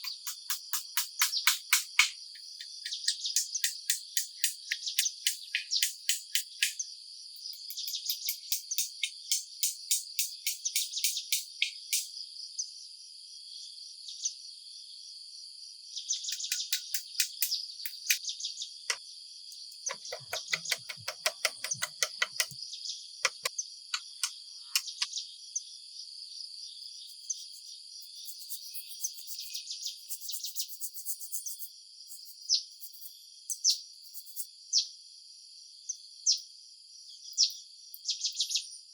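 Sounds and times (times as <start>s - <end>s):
rattling clicks: 19.9s - 22.6s, 23.2s - 25.1s.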